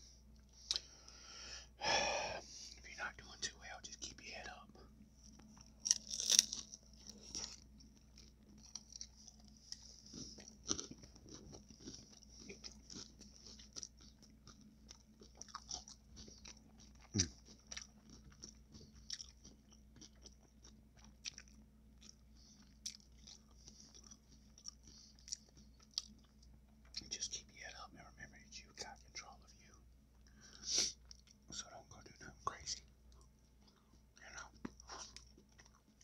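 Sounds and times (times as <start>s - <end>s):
crunchy food being chewed: 5.2s - 27.9s, 28.5s - 36.0s.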